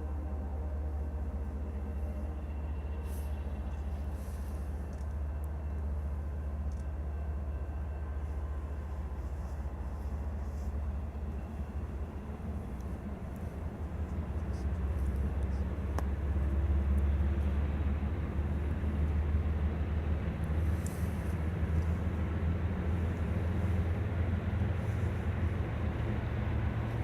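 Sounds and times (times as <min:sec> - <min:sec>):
diesel freight train rumbling: 0:00.0 - 0:27.0.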